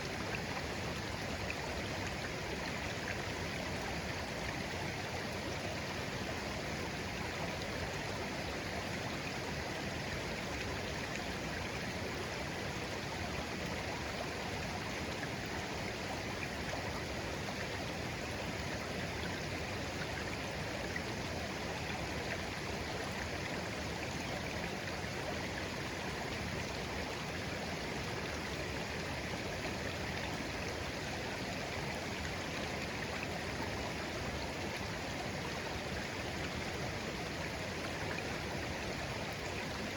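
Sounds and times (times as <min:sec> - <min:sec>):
stream babbling gently: 0:00.0 - 0:39.9.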